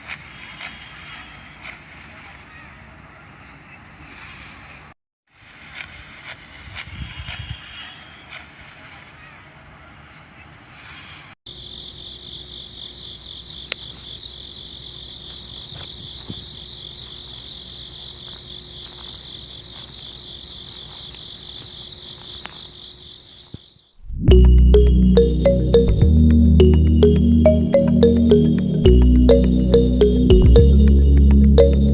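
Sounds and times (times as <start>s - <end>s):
crickets trilling: 11.5s - 24.0s
loud music: 24.3s - 31.9s.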